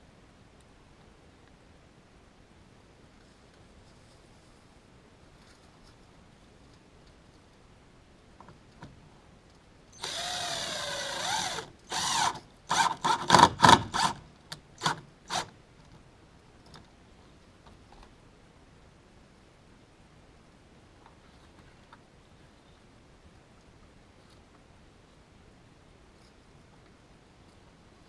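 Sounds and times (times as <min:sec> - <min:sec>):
power drill running: 0:10.0 - 0:13.3.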